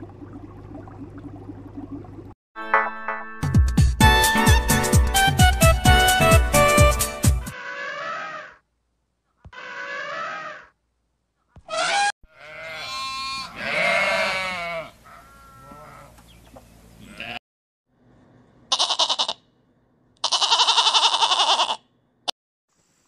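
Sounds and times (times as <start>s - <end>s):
sheep and goats bleating: 12.3s - 16.2s, 17.0s - 17.4s, 18.7s - 19.4s, 20.2s - 21.8s.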